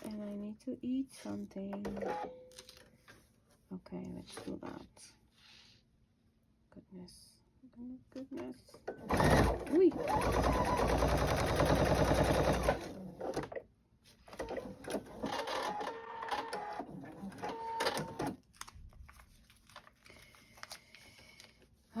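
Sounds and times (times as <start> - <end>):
sewing machine stitching: 8.9 - 13.6, 14.3 - 18.4.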